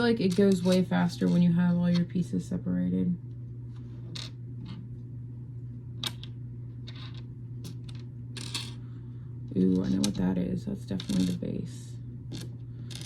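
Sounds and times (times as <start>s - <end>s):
low hum: 0.0s - 13.0s
plastic bricks clicking and clattering: 12.3s - 13.0s.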